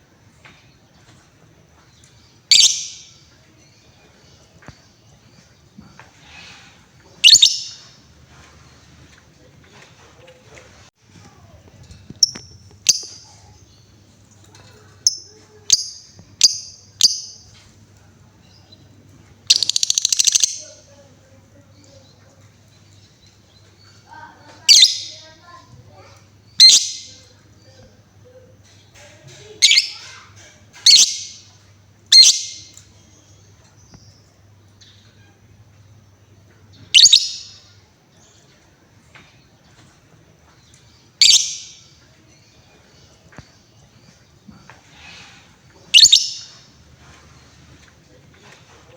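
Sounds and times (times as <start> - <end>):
faint bird chirps: 1.8 - 7.9, 12.1 - 29.0, 29.6 - 46.8
lovebird trill of clicking chirps: 2.5 - 3.0, 7.2 - 7.8, 19.5 - 20.6, 30.8 - 31.2, 37.0 - 37.7, 40.7 - 41.8, 46.0 - 46.6
lovebird shrill call: 2.5 - 3.1, 7.2 - 7.8, 19.5 - 20.6, 26.6 - 27.2, 32.1 - 32.7, 36.9 - 37.7, 41.2 - 41.9, 45.9 - 46.7.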